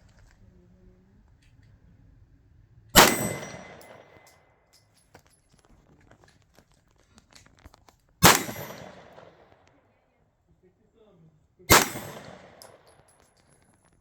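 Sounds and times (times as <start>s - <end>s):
metallic ring from steel target: 3.0s - 4.3s, 11.7s - 13.0s
pistol shots echoing: 3.0s - 4.3s, 8.2s - 9.7s, 11.7s - 13.2s.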